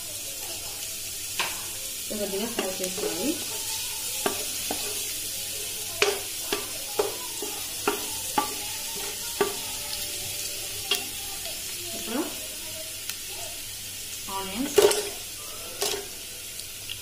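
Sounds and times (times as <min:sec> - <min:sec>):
ginger and garlic sizzling in oil: 0:00.0 - 0:17.0
wooden spatula knocking pan: 0:02.5 - 0:09.8.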